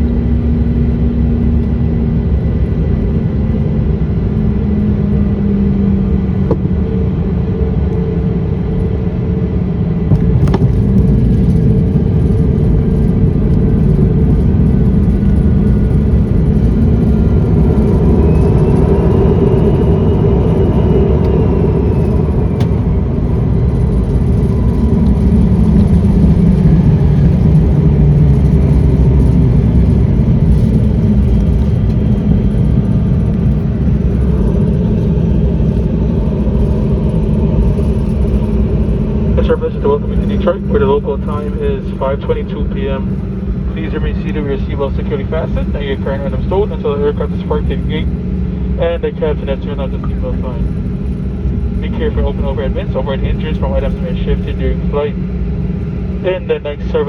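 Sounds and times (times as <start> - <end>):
jet engine and airflow rumble: 0.0 - 57.0
faint whine: 10.0 - 57.0.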